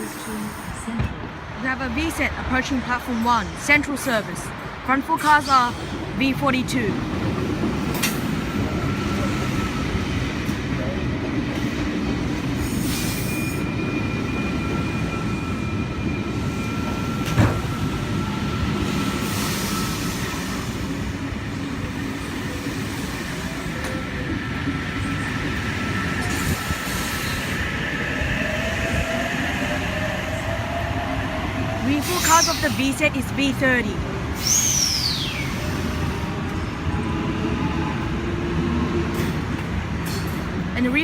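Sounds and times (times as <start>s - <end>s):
electric train rolling slowly: 0.0s - 41.0s
wheel and brake squeal: 12.7s - 18.3s, 34.4s - 36.1s.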